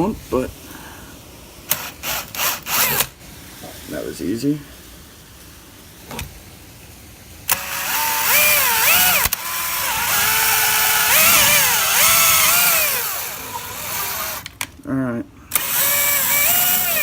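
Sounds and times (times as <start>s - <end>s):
power drill drilling through wall: 1.7s - 3.2s, 7.5s - 14.6s, 15.5s - 17.0s.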